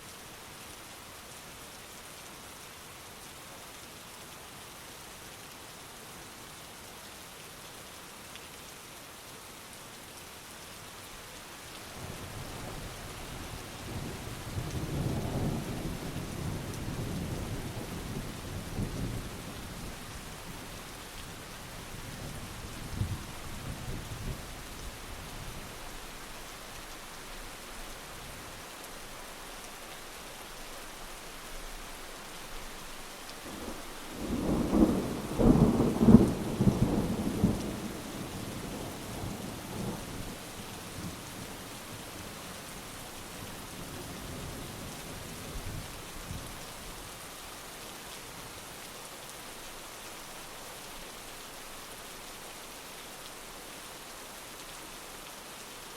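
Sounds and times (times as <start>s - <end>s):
heavy rain: 0.0s - 55.9s
crackling thunder peal: 33.5s - 40.0s
rolling thunder: 33.6s - 40.0s.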